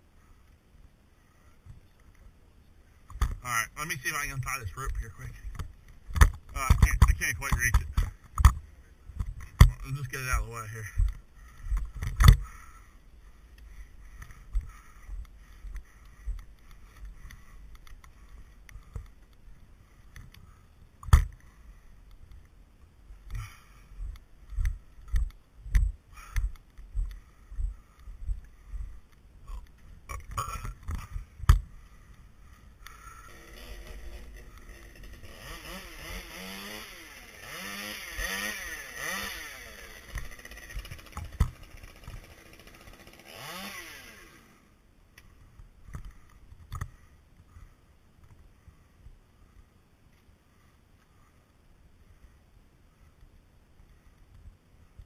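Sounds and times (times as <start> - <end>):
chainsaw running: 32.9 - 44.8.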